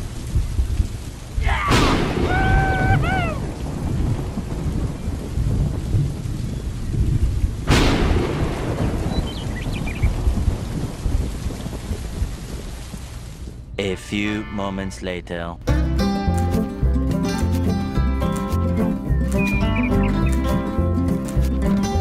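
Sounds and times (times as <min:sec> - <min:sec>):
steady rain: 0:00.0 - 0:13.8, 0:15.9 - 0:22.0
thunder claps: 0:00.3 - 0:13.6.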